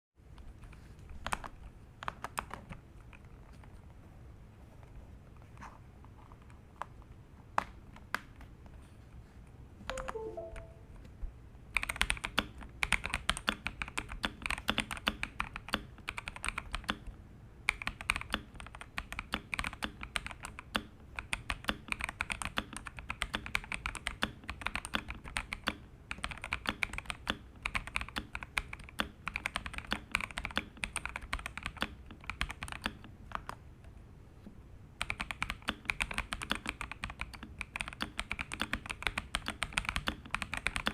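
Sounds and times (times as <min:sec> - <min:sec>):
mechanical keyboard typing: 0:01.2 - 0:03.3, 0:09.9 - 0:10.8, 0:11.8 - 0:17.1, 0:17.7 - 0:33.6, 0:35.0 - 0:40.9.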